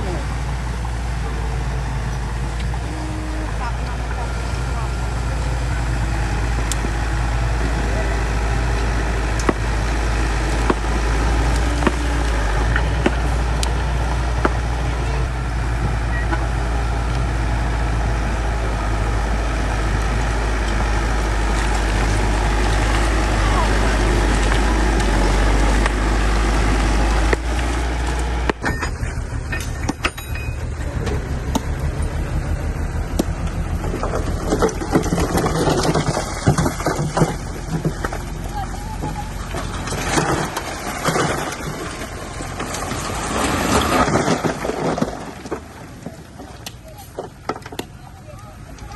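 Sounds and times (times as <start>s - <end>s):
bulldozer diesel engine running: 0.0s - 48.9s
irregular knocks and clatter: 27.3s - 48.0s.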